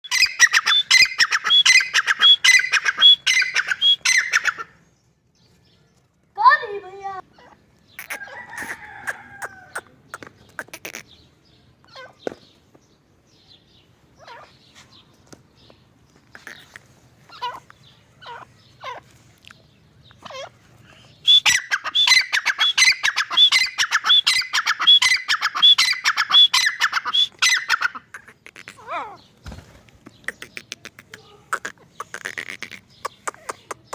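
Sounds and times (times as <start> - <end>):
francolin calling harshly: 0.0 - 4.7, 20.2 - 29.3.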